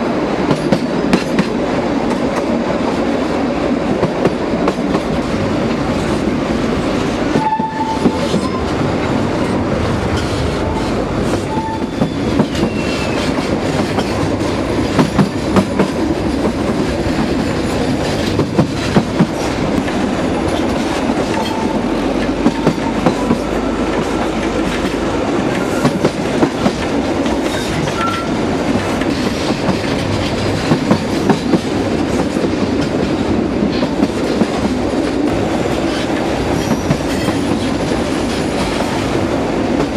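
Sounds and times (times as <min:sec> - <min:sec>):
train wheels clattering on rails: 0:00.0 - 0:39.9
wheel squeals: 0:11.5 - 0:13.4.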